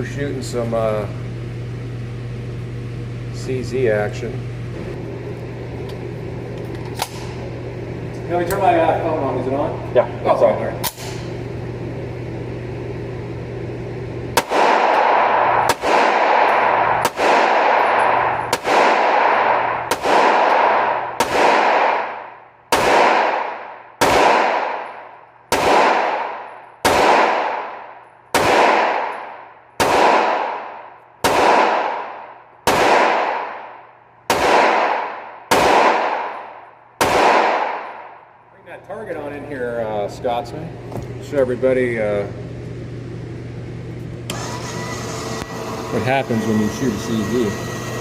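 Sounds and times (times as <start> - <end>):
steady hum: 0.0 - 48.0
gunshots ringing out: 14.4 - 38.2.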